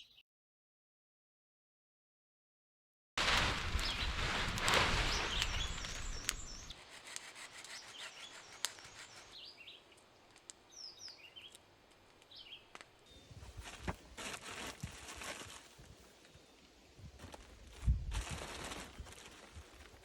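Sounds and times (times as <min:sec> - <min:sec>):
loud rustling: 0:03.2 - 0:09.4, 0:13.3 - 0:16.1
small birds chirping: 0:03.7 - 0:14.2, 0:15.5 - 0:18.1.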